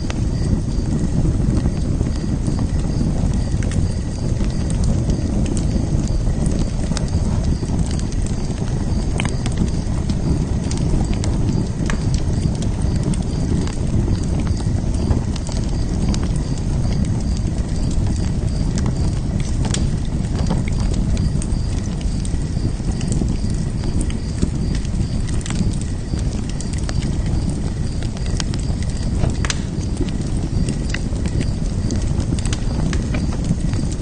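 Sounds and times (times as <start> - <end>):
fire crackles and pops: 0.0 - 34.0
wood fire burning: 0.0 - 34.0.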